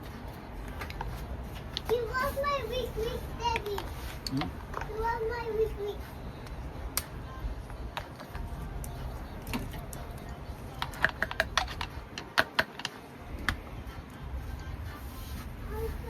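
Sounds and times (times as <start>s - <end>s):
low steady rumble: 0.0s - 12.2s, 13.2s - 16.0s
small hard objects clicking: 10.8s - 13.0s.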